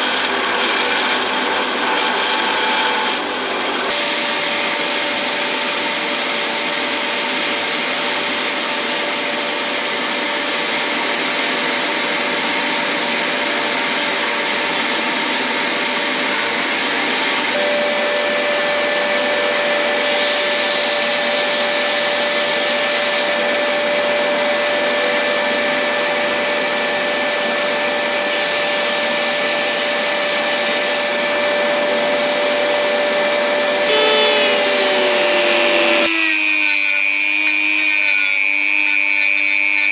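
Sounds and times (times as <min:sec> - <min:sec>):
electric saw running: 0:00.0 - 0:26.6, 0:28.3 - 0:39.9
high whine: 0:03.9 - 0:26.8, 0:33.0 - 0:36.1
second steady tone: 0:33.9 - 0:36.1.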